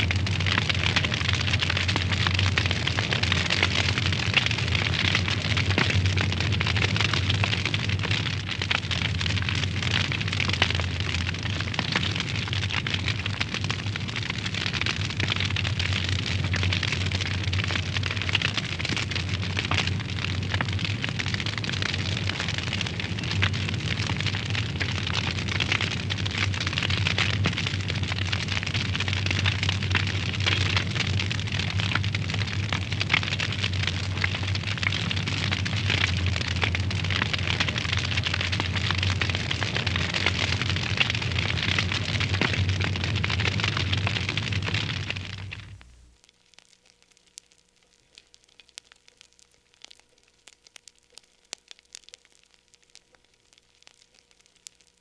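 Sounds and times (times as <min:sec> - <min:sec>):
low fire rumble: 0:00.0 - 0:46.3
fire hissing with crackles: 0:00.0 - 0:55.0.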